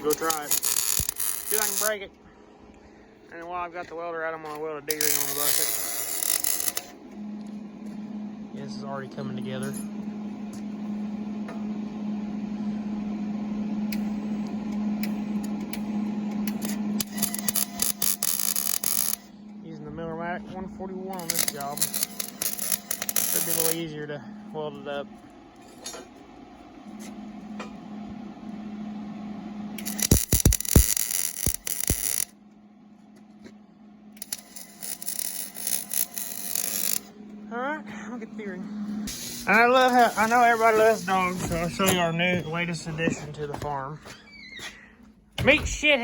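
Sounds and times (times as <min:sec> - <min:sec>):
welding arc crackling: 0:00.0 - 0:02.2, 0:04.8 - 0:07.0, 0:15.0 - 0:19.3, 0:21.2 - 0:24.0, 0:29.7 - 0:32.4, 0:34.1 - 0:37.2, 0:39.0 - 0:42.8
welder humming: 0:00.0 - 0:43.9.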